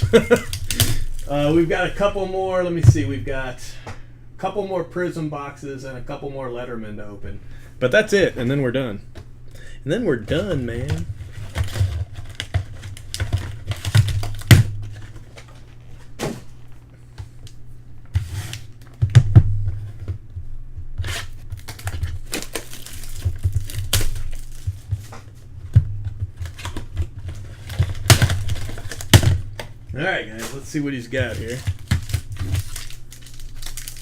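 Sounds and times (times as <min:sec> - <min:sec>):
wrapper crinkling and tearing: 0:00.0 - 0:01.6, 0:10.8 - 0:16.8, 0:21.0 - 0:25.1, 0:26.3 - 0:29.6, 0:30.3 - 0:34.0.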